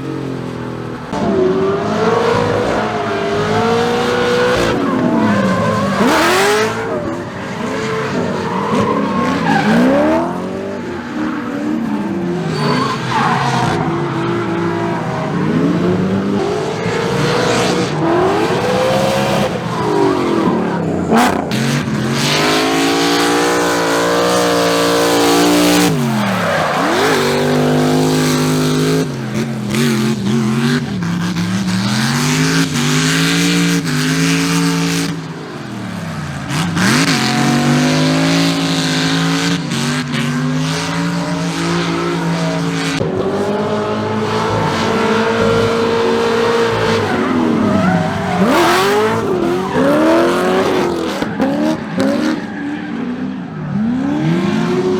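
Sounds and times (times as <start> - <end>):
car engine revving: 0.0 - 53.2
tyres squealing: 44.4 - 52.3.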